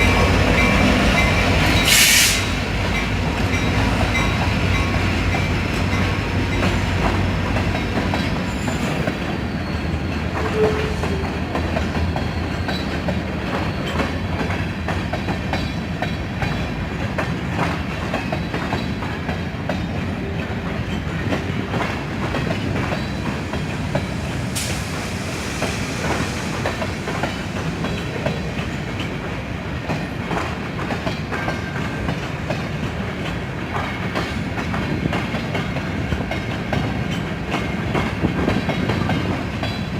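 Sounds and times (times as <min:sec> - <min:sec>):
train wheel squeal: 0:00.0 - 0:06.9, 0:07.8 - 0:16.6, 0:22.5 - 0:29.2
freight train cars rolling: 0:00.0 - 0:39.9.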